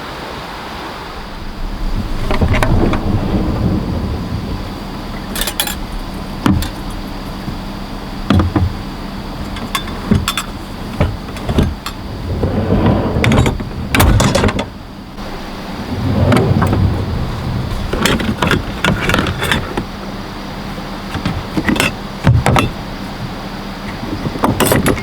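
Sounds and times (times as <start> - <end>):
low hum: 0.9 - 20.9
sharp knocks and clunks: 5.2 - 12.1, 21.1 - 22.8.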